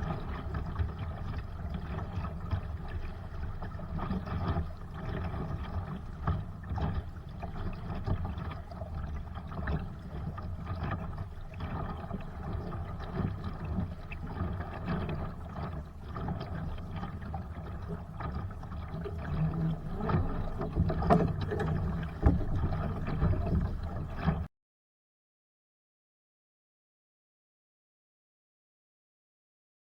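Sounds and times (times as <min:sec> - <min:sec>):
water rushing along a hull: 0:00.0 - 0:24.5.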